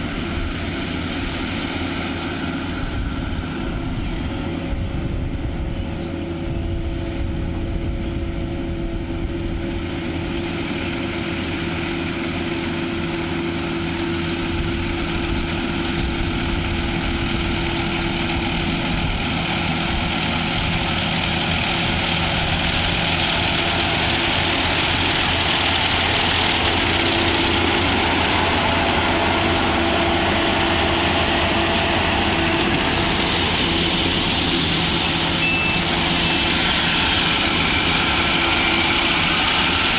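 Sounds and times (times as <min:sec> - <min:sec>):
harvesting machine engine humming: 0:00.0 - 0:39.9.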